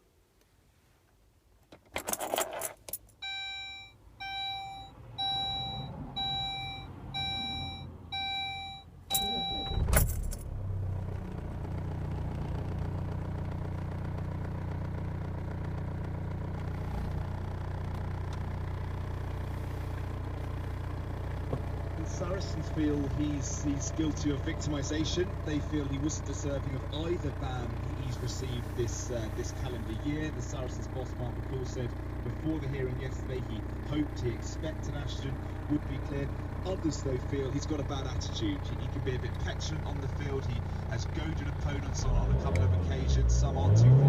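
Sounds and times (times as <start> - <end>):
keys rattling: 1.8 - 3.2
warning chime beeping: 3.2 - 10.0
diesel engine idling: 3.3 - 44.0
car engine starter cranking: 9.1 - 11.5.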